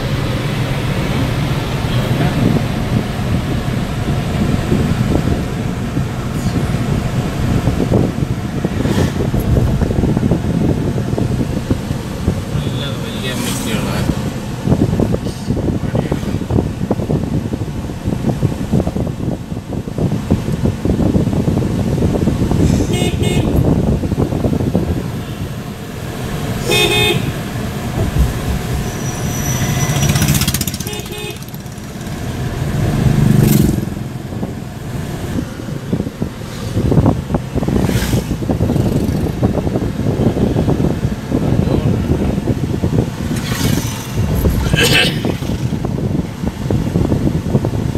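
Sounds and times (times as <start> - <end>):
car road and engine noise: 0.0 - 47.9
vehicle horns tooting: 22.8 - 23.7, 26.6 - 27.5, 28.8 - 31.6.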